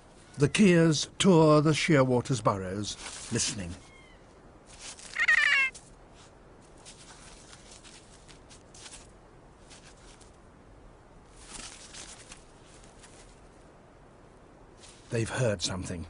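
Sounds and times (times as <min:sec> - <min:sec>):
faint scratchy rustles: 0:02.4 - 0:10.6, 0:11.2 - 0:13.8, 0:14.7 - 0:16.0
parrot wavering cat-like call: 0:03.8 - 0:04.2, 0:05.1 - 0:05.8.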